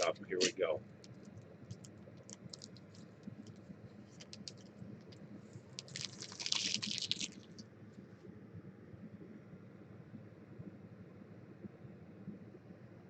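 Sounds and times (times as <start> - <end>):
wrapper rustling: 1.7 - 4.7, 5.8 - 7.6.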